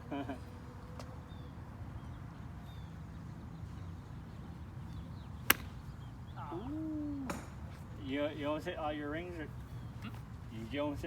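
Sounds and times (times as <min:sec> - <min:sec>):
golf club striking ball: 0:05.4 - 0:05.8.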